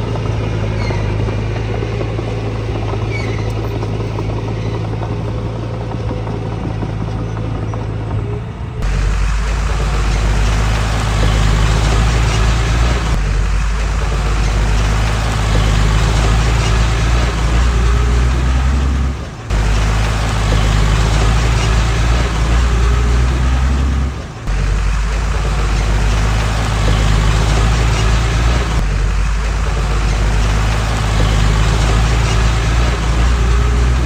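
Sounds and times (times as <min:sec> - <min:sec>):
heavy machinery diesel engine: 0:00.0 - 0:34.0.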